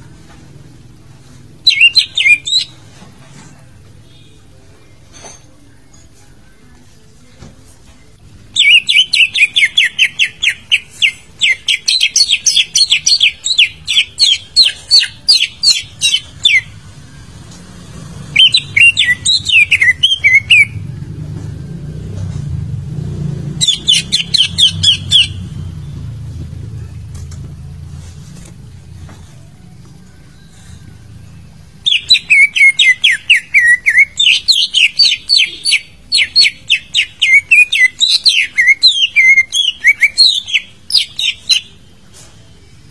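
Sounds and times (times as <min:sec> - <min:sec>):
bird chirping rapidly: 0:01.6 - 0:02.9, 0:08.5 - 0:17.0, 0:18.2 - 0:20.9, 0:23.3 - 0:26.9, 0:31.3 - 0:41.9.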